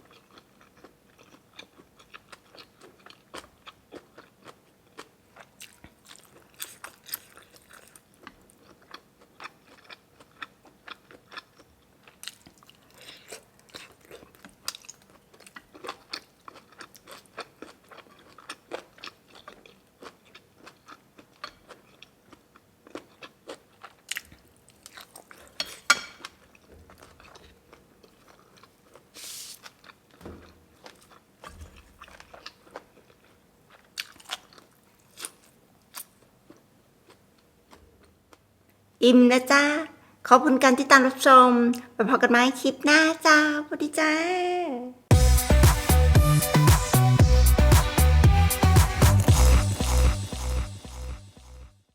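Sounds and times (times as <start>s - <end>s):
person chewing crunchy food: 0.0s - 38.2s.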